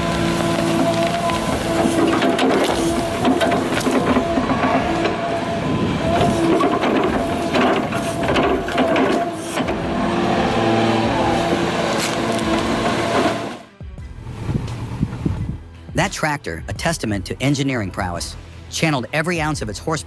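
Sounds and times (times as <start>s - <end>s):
wood cracking and breaking: 0.0s - 13.5s
heavy machinery engine: 0.0s - 15.4s.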